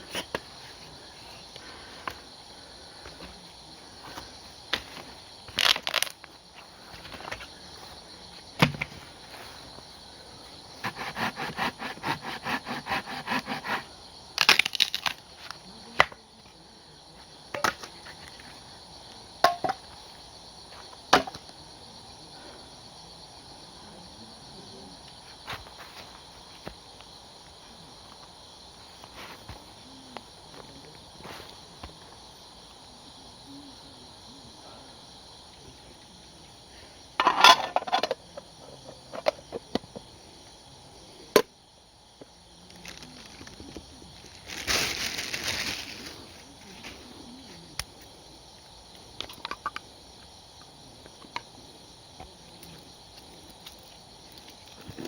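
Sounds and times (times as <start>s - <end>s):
crickets chirping: 0.0s - 55.0s
sawing or scraping wood: 10.8s - 13.9s.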